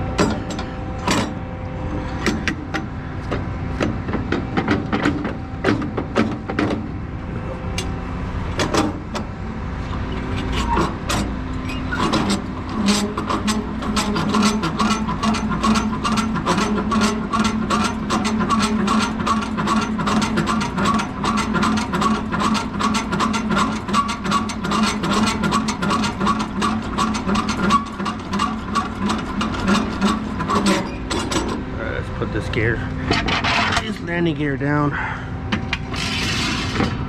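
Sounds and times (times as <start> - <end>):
grinding gear hum: 0.0 - 37.0
crank and gearbox clicking: 10.3 - 31.6.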